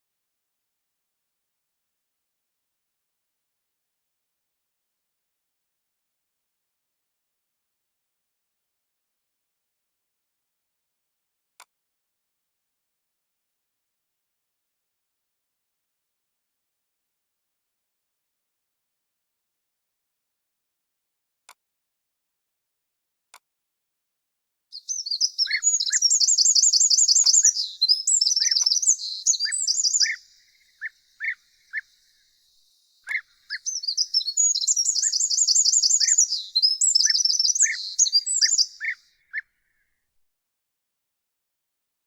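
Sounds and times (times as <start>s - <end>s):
bird call notes: 24.8s - 39.4s
songbird trilling song: 24.8s - 39.4s.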